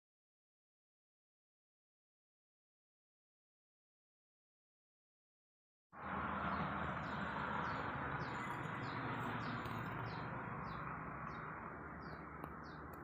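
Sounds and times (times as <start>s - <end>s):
small bird chirping: 7.0s - 13.0s.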